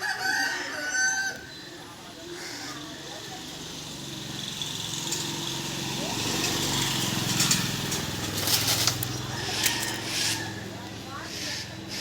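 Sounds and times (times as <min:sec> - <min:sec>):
small engine droning: 0:02.7 - 0:11.1
scratchy rustles and scrapes: 0:07.3 - 0:10.6.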